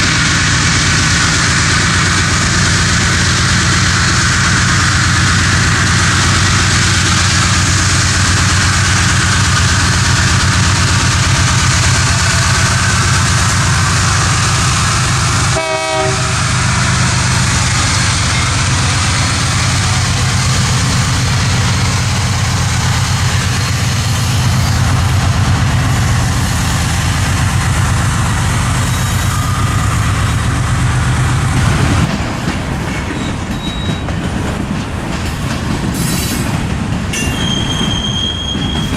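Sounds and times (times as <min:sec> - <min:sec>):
locomotive engines running: 0:00.0 - 0:38.9
railcars rumbling over rails: 0:00.0 - 0:38.9
train horn note: 0:15.2 - 0:17.0.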